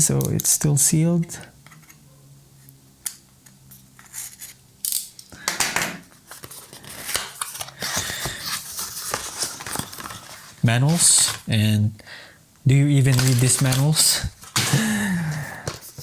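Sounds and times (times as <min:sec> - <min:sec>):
packaging clicks: 0:05.4 - 0:11.5, 0:13.0 - 0:16.0
wrapping crinkling and rustling: 0:06.1 - 0:11.6, 0:12.9 - 0:16.0.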